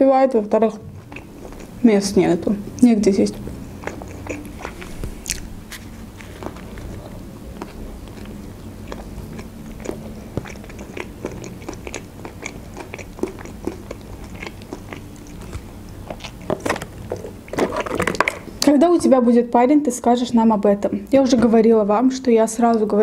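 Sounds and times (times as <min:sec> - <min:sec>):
steady low hum: 0:00.0 - 0:23.0
person chewing: 0:00.9 - 0:01.8, 0:02.7 - 0:18.6.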